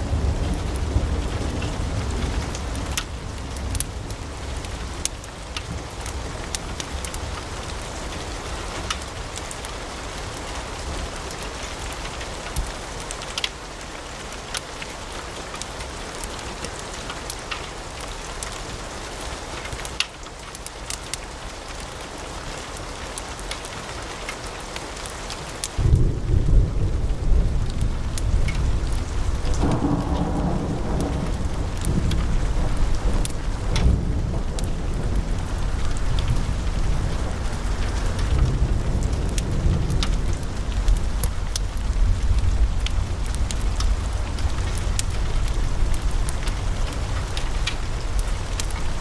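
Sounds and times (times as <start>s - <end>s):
fire crackles and pops: 0.0s - 49.0s
low rumble: 25.8s - 49.0s.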